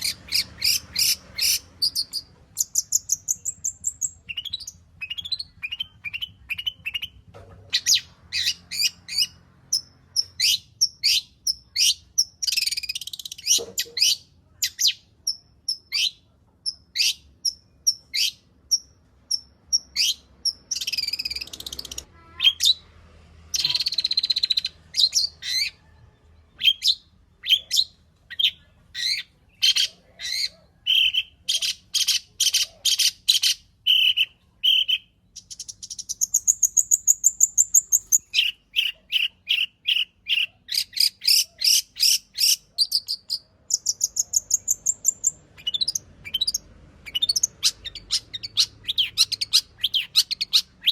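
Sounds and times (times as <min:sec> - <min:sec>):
scratchy harsh bird phrases: 0:00.0 - 0:02.5, 0:20.1 - 0:25.9, 0:26.6 - 0:35.2
shrike singing varied song: 0:00.0 - 0:50.9.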